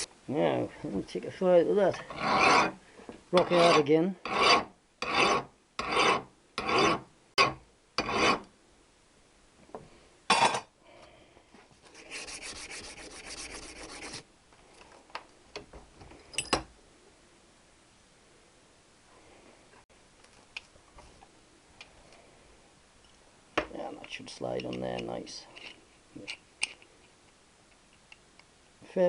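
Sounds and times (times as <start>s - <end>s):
file rasping on steel: 2.0s - 2.8s, 3.4s - 8.5s, 11.9s - 14.2s
soft rapid scratching: 11.8s - 14.2s.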